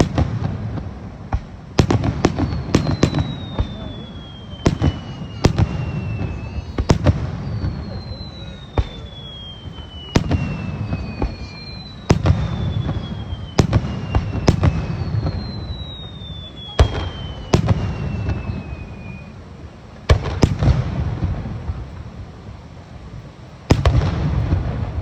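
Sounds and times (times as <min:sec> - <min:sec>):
fireworks bangs with echoes: 0:00.0 - 0:19.4, 0:20.0 - 0:22.1, 0:23.7 - 0:25.0
fireworks whistles falling in pitch: 0:00.0 - 0:19.5.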